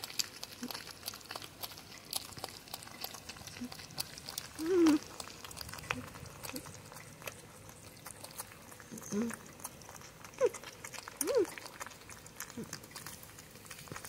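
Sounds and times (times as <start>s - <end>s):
porcupine chewing: 0.0s - 14.0s
porcupine whining call: 4.6s - 5.1s, 8.9s - 9.4s, 11.2s - 11.6s.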